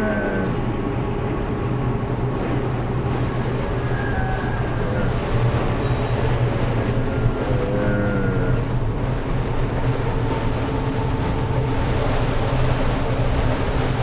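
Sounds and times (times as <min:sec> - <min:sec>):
short wavering tone: 0:00.0 - 0:05.0
low rumbling drone: 0:00.0 - 0:14.0.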